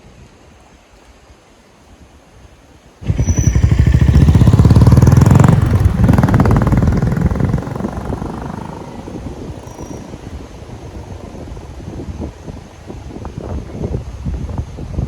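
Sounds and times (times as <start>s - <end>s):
motorcycle engine passing: 3.0s - 11.7s.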